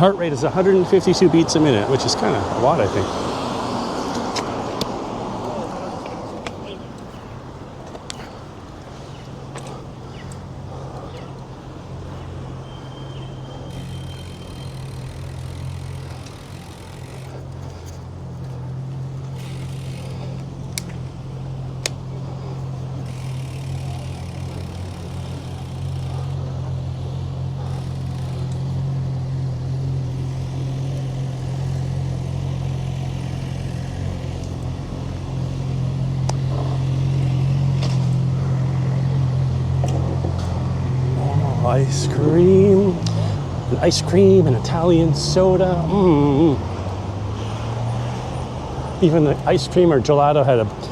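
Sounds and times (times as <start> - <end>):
road noise: 0.0 - 50.9
sharp clicks: 12.3 - 26.8, 27.7 - 34.8.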